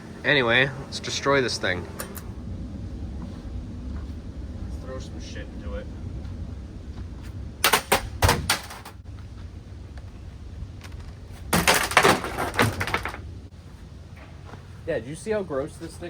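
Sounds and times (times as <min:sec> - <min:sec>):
ceiling fan humming: 0:00.0 - 0:16.0
objects knocking against fan blades: 0:10.8 - 0:13.3.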